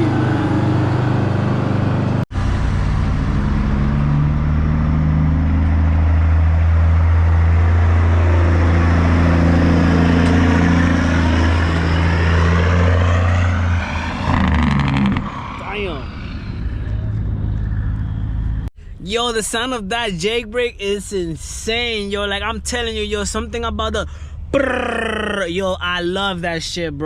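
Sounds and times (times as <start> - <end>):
truck diesel engine droning: 0.0 - 19.0.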